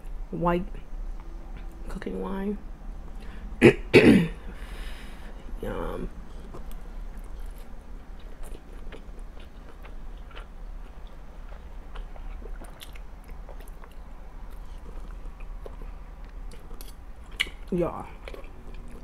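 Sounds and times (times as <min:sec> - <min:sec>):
wet chewing clicks: 0:06.4 - 0:19.0.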